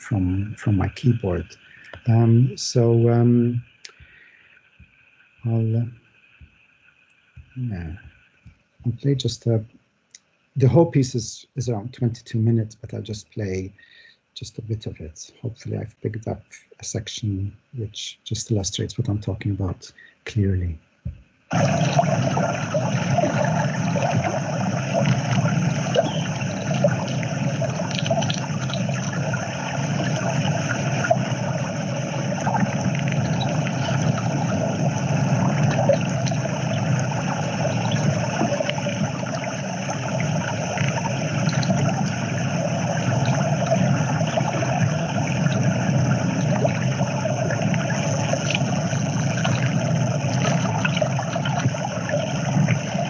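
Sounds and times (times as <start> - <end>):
dense environmental sound wash: 0.0 - 20.7, 21.3 - 53.0
faint ticks: 3.7 - 9.0, 9.7 - 10.5.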